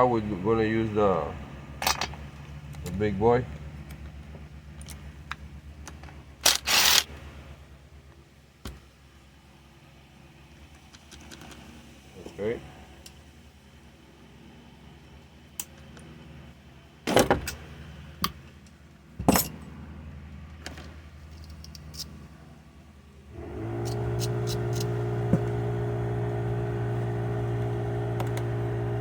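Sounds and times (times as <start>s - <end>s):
motor running steadily: 23.1s - 29.0s.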